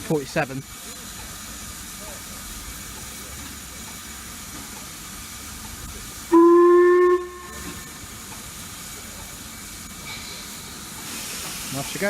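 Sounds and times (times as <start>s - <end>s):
steam locomotive hissing: 0.0s - 12.0s
steam whistle blast: 6.3s - 8.1s.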